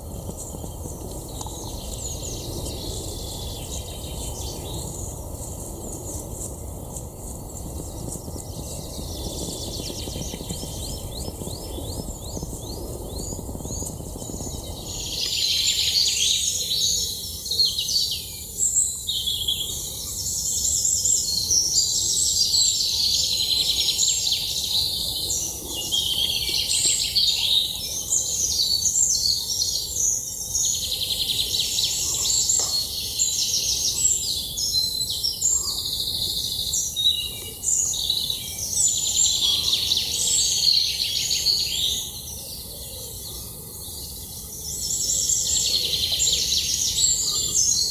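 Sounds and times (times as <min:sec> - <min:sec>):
low background rumble: 0:00.0 - 0:15.5
birds singing and chirping: 0:00.0 - 0:47.9.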